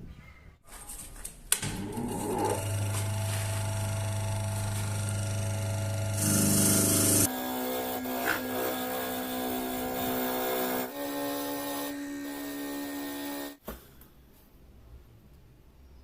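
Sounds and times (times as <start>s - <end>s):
electric motor whining and humming: 1.6s - 13.6s.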